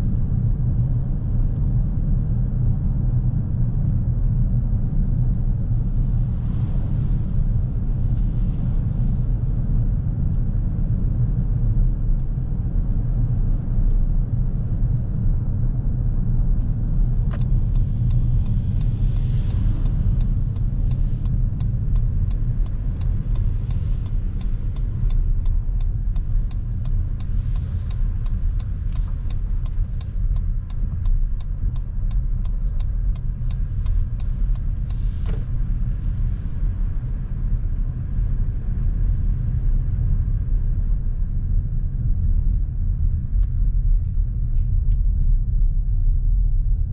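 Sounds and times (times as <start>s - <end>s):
road and tyre rumble: 0.0s - 46.9s
sharp ticks: 17.3s - 35.0s.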